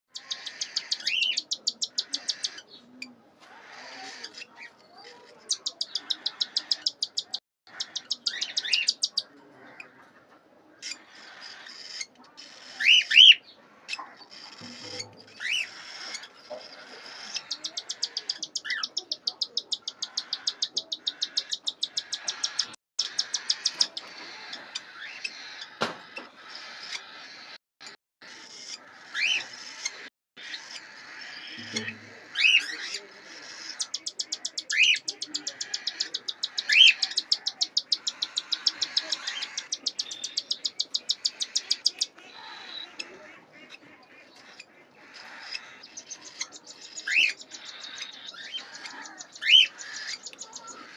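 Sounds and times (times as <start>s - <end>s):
chicks chirping rapidly: 0.1s - 50.9s.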